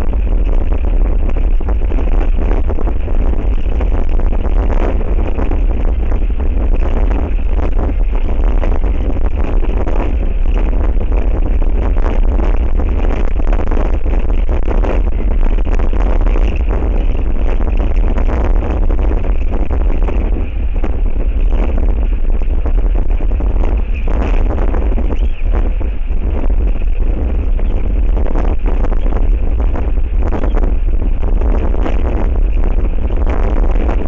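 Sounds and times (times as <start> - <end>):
strong wind buffeting microphone: 0.0 - 34.0.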